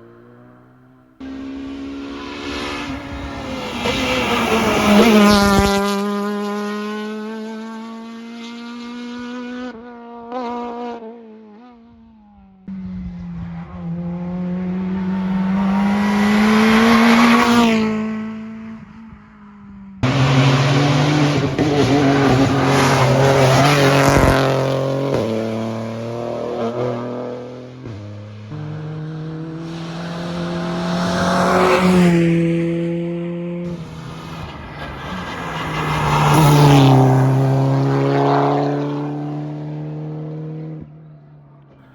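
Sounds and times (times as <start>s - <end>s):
rally car engines revving: 0.0s - 41.9s.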